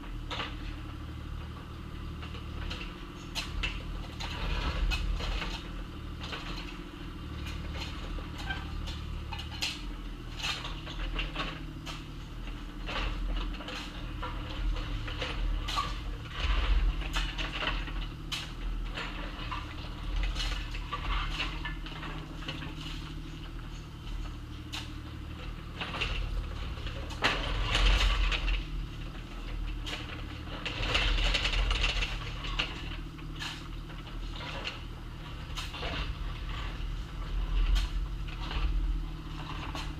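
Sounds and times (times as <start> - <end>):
excavator engine running: 0.0 - 39.9
steel bucket scraping gravel: 12.9 - 39.9.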